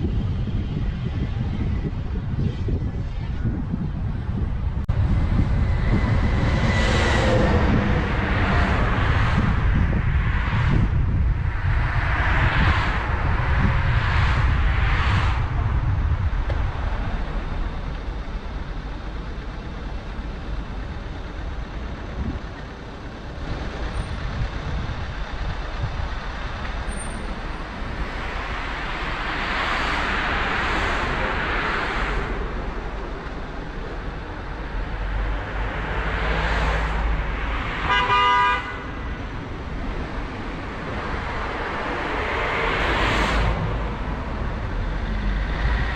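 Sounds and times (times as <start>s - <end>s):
passing traffic: 0.0s - 45.9s
road noise and tyre hiss: 0.0s - 45.9s
car horn: 37.8s - 39.2s.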